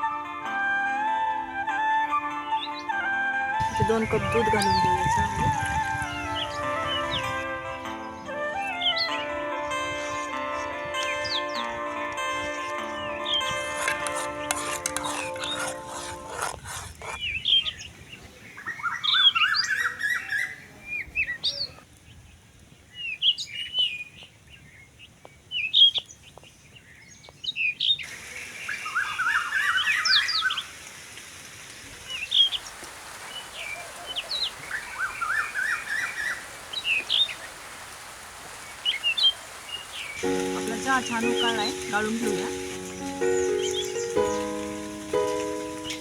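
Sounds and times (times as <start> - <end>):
songbirds chirping: 2.3 - 30.9, 31.8 - 46.0
steady hiss: 28.0 - 46.0.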